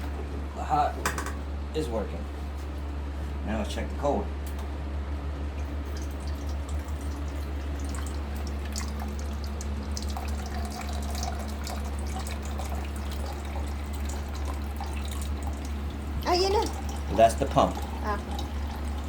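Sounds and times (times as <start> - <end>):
low pump hum: 0.0 - 19.0
water pouring into a cup: 5.8 - 19.0.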